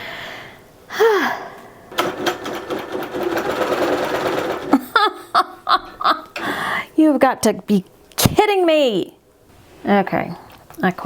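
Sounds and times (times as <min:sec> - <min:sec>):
quilting machine stitching: 0:01.9 - 0:04.8.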